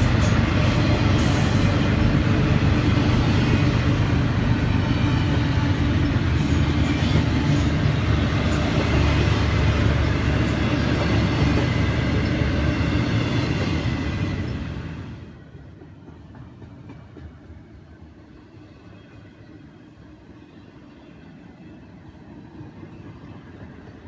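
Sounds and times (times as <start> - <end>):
train wheels rumbling on rail: 0.0 - 20.2.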